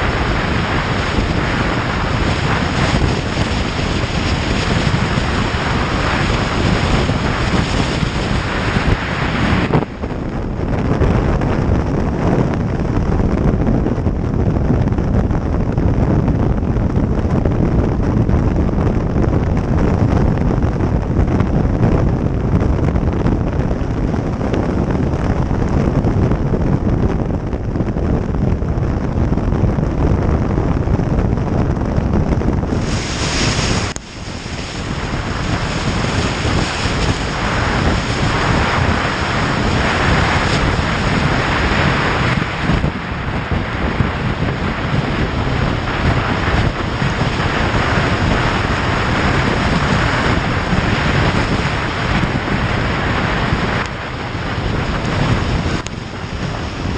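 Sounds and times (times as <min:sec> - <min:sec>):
road noise: 0:00.0 - 0:13.2, 0:31.8 - 0:56.9
wind rushing over microphone: 0:00.0 - 0:56.9.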